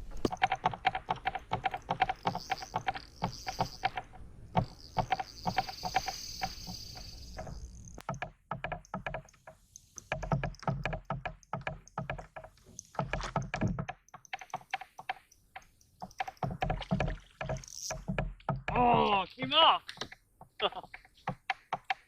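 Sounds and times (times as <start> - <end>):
fishing reel clicking: 1.6 - 4.0, 4.6 - 8.0, 17.6 - 18.0.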